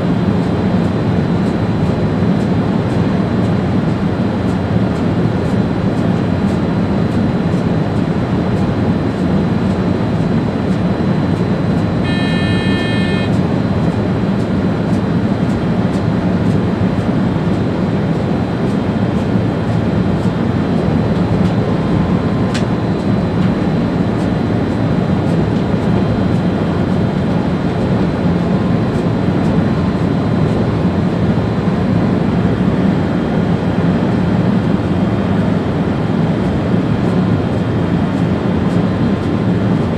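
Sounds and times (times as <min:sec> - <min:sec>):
train running rumble: 0:00.0 - 0:39.9
short electronic tone: 0:12.0 - 0:13.4.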